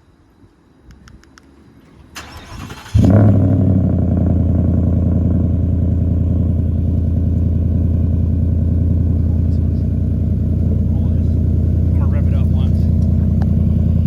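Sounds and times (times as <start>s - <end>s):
car engine starting and idling: 1.6s - 14.0s
starter motor cranking: 2.2s - 3.2s.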